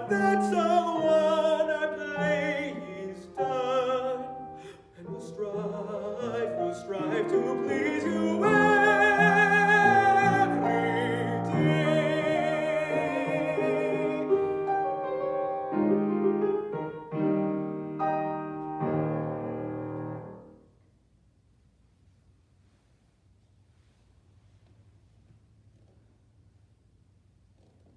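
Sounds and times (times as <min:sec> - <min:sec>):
classical solo voice with vibrato: 0:00.0 - 0:16.1
piano chords: 0:00.0 - 0:20.7.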